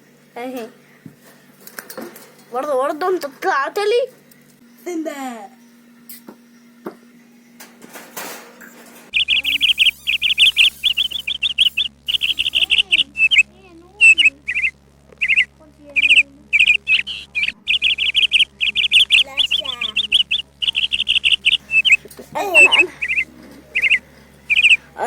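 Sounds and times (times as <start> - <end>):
cockatiels chirping: 9.2 - 24.9.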